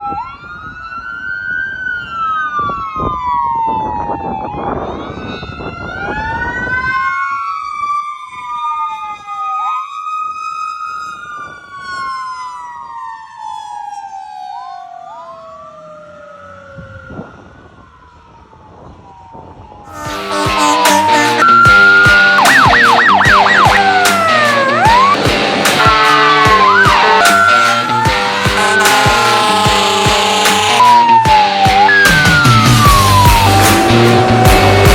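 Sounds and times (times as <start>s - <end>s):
fire engine siren: 0.0s - 34.9s.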